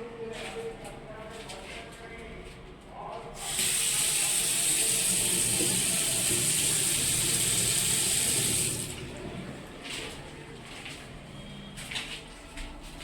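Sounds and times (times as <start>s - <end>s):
pressurised water spraying hiss: 3.4s - 9.0s.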